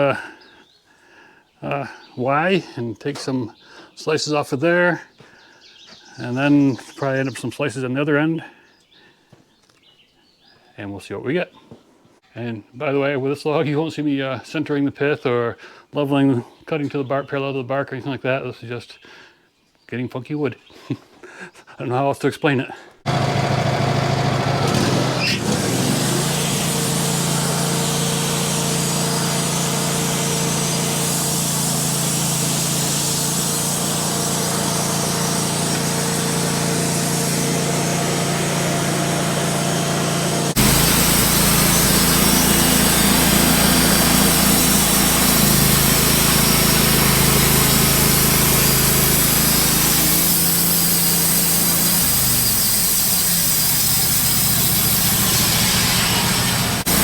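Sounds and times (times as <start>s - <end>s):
band sawmill sawing log: 23.1s - 57.0s.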